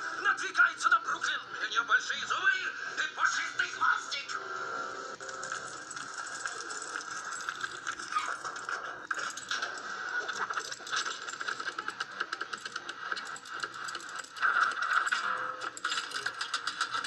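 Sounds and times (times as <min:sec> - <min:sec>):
mechanical clicking and rattling: 0:05.2 - 0:17.0.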